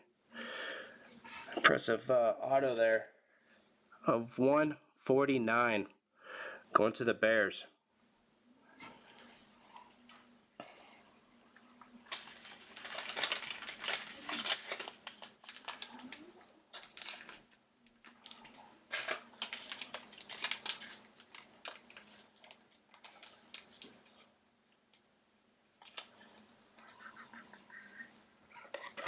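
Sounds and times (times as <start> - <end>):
plastic packaging crinkling: 11.8 - 24.3, 25.8 - 27.2.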